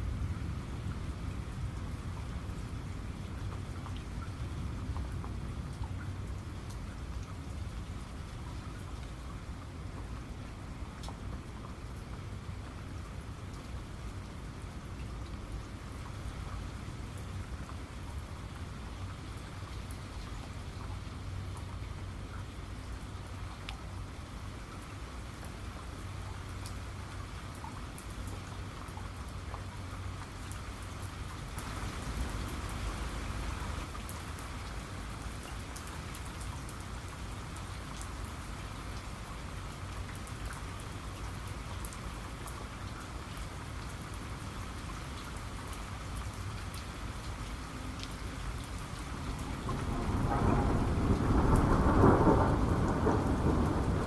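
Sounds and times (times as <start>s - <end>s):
steady rain: 0.0s - 54.0s
sharp raindrop hits: 49.1s - 54.0s
thunder rumble: 49.1s - 54.0s.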